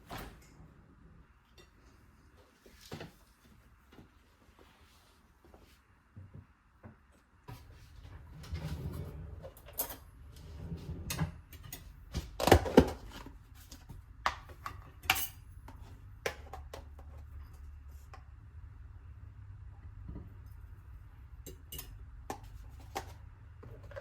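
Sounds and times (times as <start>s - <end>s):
utensils and dishes clinking: 14.5s - 15.6s, 21.4s - 23.0s.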